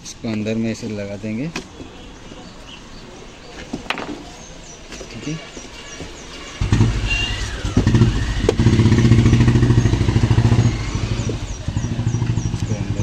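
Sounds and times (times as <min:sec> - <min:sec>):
motorcycle engine running: 0:06.4 - 0:13.0.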